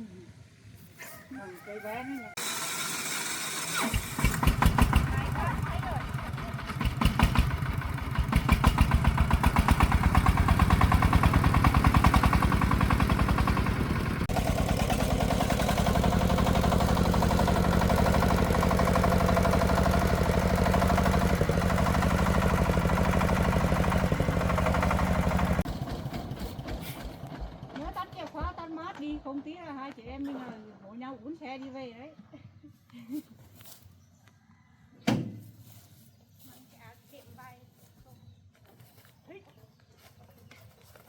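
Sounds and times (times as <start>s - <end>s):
diesel engine chugging: 2.5s - 29.2s.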